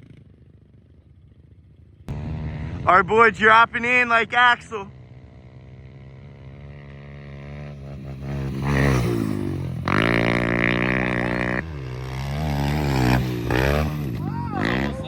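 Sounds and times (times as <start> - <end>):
pit bike engine revving hard: 2.1 - 3.1, 4.9 - 15.0.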